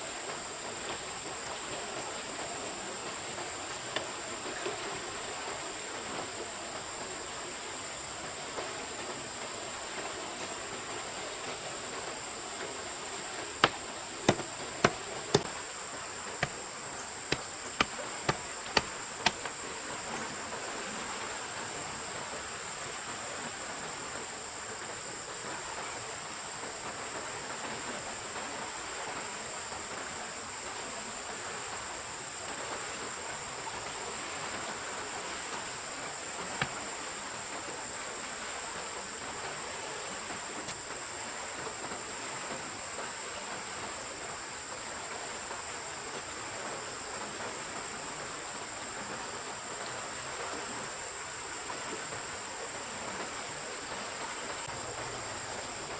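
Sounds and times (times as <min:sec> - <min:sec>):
insects droning: 0:00.0 - 0:55.9
running water: 0:00.0 - 0:55.9
sharp knocks: 0:13.6 - 0:15.5, 0:16.4 - 0:16.6, 0:17.3 - 0:19.6.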